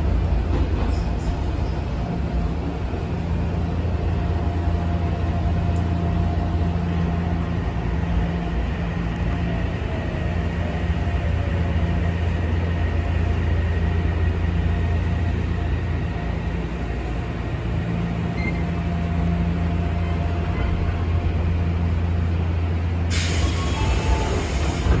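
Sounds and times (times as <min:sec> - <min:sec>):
train running gear rumble: 0:00.0 - 0:25.0
compressed air hiss: 0:23.1 - 0:24.9.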